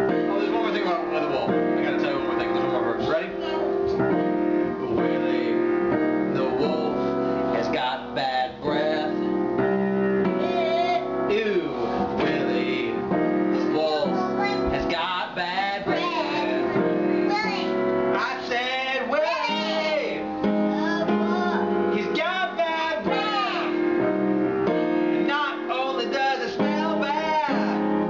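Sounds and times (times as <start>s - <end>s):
keyboard sustained chords: 0.0s - 28.0s
people singing: 13.7s - 17.4s, 18.2s - 20.2s.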